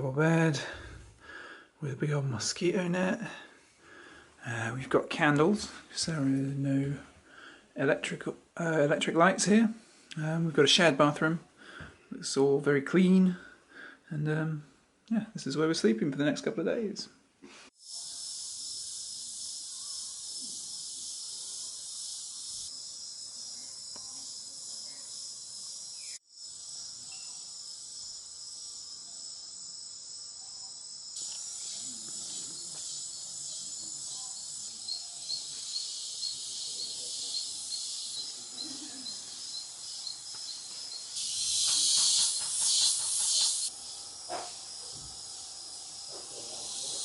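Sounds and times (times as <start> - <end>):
insects buzzing and trilling: 17.8 - 47.0
rapid repeated chirping: 17.8 - 47.0.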